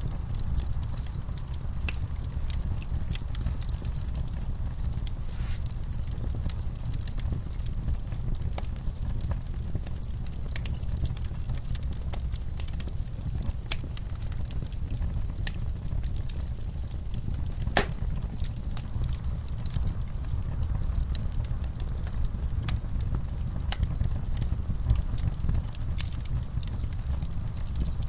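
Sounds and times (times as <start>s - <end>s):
fire crackling and popping: 0.0s - 28.0s
fire rumbling: 0.0s - 28.0s.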